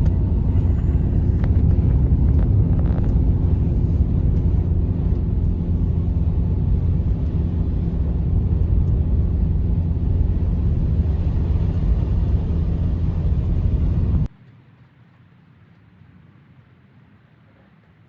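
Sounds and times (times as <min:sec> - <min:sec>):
loud low rumble: 0:00.0 - 0:14.3.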